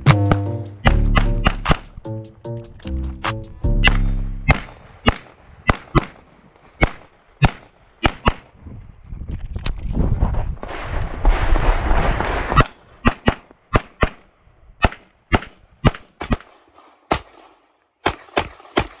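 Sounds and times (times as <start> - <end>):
rapid pistol shots: 3.8 - 8.5, 14.8 - 19.0.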